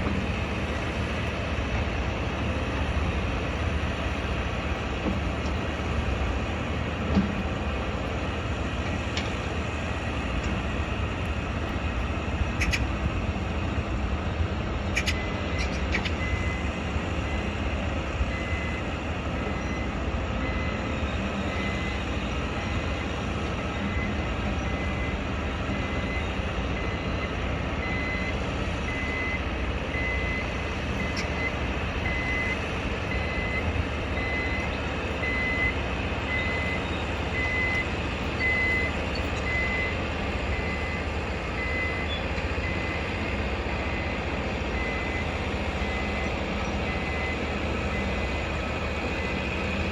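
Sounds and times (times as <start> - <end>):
low rumble of machinery and traffic: 0.0 - 49.9
reversing alarm beeps: 15.0 - 49.8.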